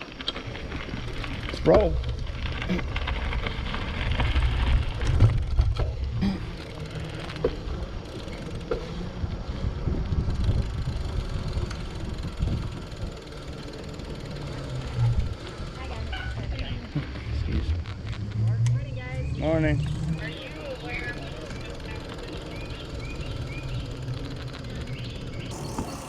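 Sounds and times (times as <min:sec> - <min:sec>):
wind buffeting microphone: 0:09.0 - 0:13.2.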